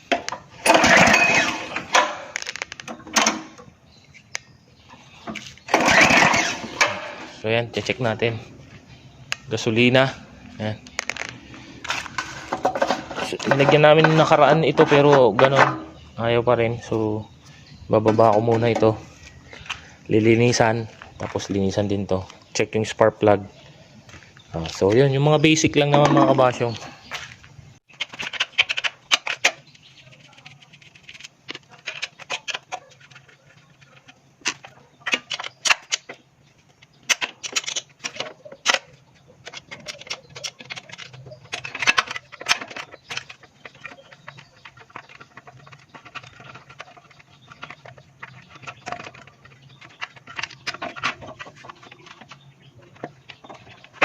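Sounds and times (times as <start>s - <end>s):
hand tools clicking on metal: 36.8s - 54.0s.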